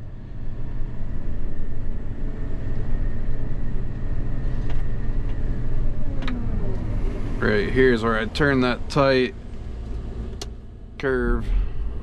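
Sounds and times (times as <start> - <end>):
combine harvester drone from cab: 0.0 - 12.0.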